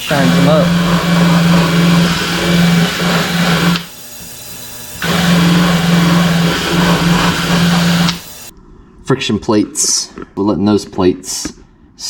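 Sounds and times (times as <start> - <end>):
cleaning machine buzzing hum: 0.0 - 8.5.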